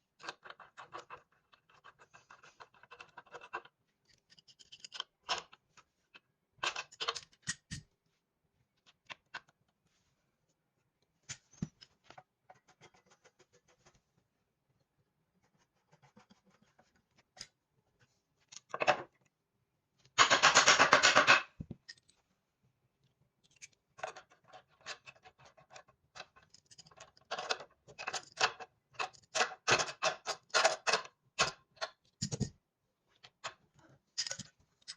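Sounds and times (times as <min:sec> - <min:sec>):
clicks taps and rattles: 0:20.0 - 0:22.2.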